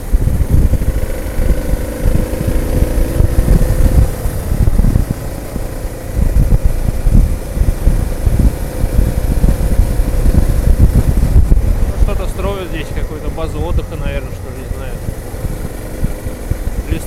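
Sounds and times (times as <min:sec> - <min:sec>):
motorcycle engine running: 0:00.0 - 0:17.0
wind buffeting microphone: 0:00.0 - 0:17.0.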